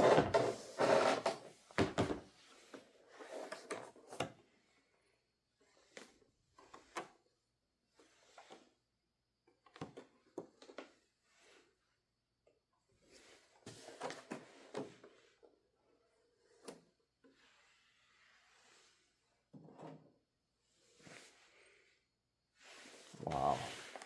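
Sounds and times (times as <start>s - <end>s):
cardboard knocks and slides: 1.7s - 2.4s.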